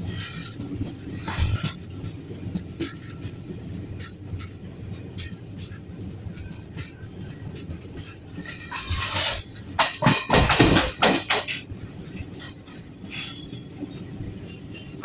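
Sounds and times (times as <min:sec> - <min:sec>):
train rattling and knocking: 0:00.0 - 0:15.0
train rumbling: 0:00.0 - 0:15.0.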